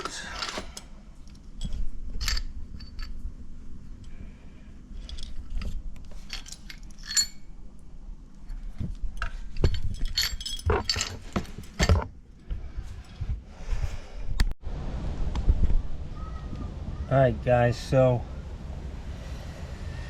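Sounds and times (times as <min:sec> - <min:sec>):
metal fittings clinking: 0:00.0 - 0:03.2, 0:05.0 - 0:07.5, 0:08.4 - 0:12.0.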